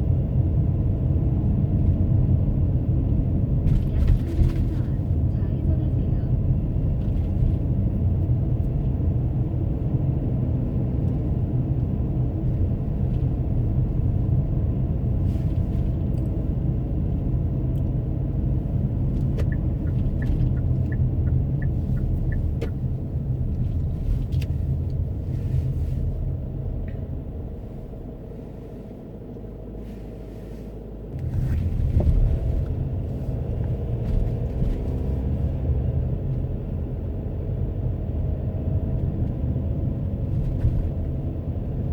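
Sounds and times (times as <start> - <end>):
car road and engine noise: 0.0 - 41.9.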